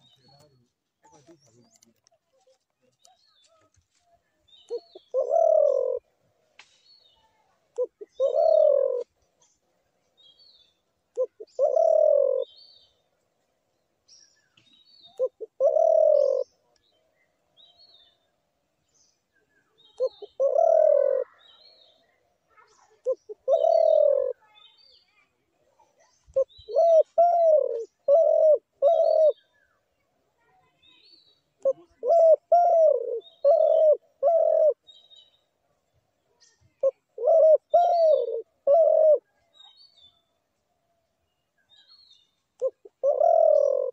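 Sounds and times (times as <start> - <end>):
small birds chirping: 0.0 - 43.9
dove cooing: 4.7 - 6.1, 7.8 - 9.1, 11.1 - 12.6, 15.0 - 16.6, 19.9 - 21.7, 22.6 - 24.4, 26.3 - 29.5, 31.6 - 34.9, 36.6 - 39.6, 42.6 - 43.9.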